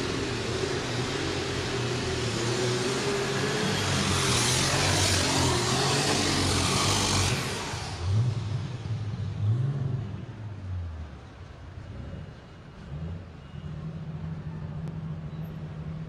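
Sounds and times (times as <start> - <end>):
tractor engine running loud: 0.0 - 9.1
engine revs: 0.0 - 16.0.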